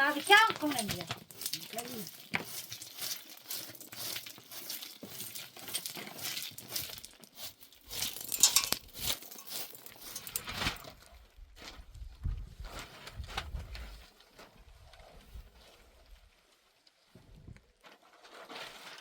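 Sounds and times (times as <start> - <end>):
crinkling and rustling: 0.0 - 19.0
light clinks: 8.2 - 10.4.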